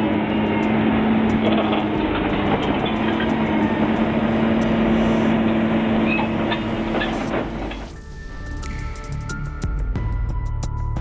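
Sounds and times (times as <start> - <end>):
heavy vehicle engine droning: 0.0 - 8.0.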